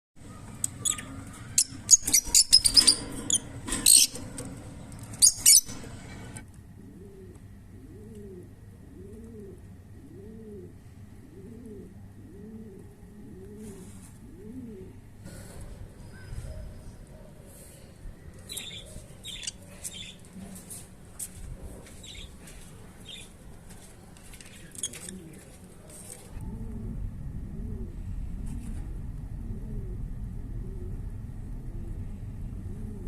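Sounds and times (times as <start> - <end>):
lovebirds chirping: 5.2 - 6.4
pigeon cooing: 5.3 - 17.6, 24.6 - 32.0, 32.6 - 33.0.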